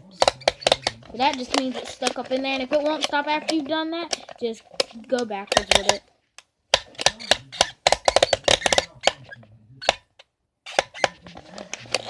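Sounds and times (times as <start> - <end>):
toy blender clicking and clattering: 0.2 - 6.0, 6.8 - 9.2, 10.7 - 12.0.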